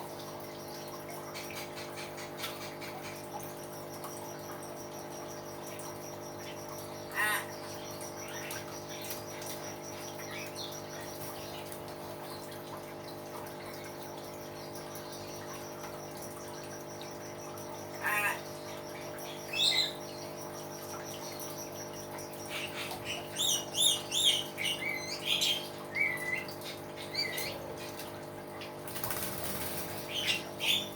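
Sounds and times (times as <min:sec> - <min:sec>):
myna bird calling: 0:07.1 - 0:09.1, 0:18.0 - 0:20.1, 0:22.4 - 0:28.0, 0:30.1 - 0:30.9.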